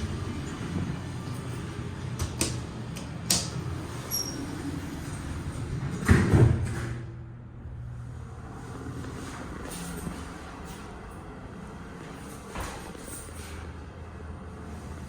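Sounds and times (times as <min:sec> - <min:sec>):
elevator doors sliding shut: 0:00.0 - 0:07.3.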